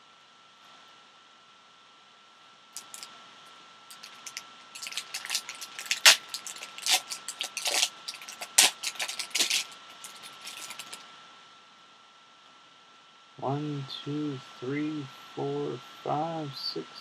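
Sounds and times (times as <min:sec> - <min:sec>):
card pack wrapper tearing and crinkling: 0:02.8 - 0:03.1, 0:03.9 - 0:11.0.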